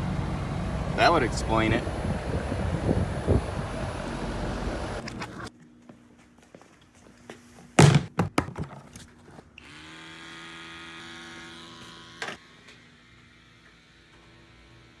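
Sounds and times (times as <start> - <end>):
steady machine hum: 0.0 - 5.5
loud thunks and knocks: 7.8 - 8.7.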